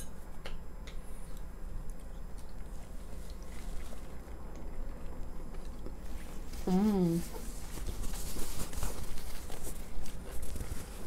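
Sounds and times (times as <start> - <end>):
low steady hum: 0.0 - 11.0
person chewing: 0.9 - 6.5.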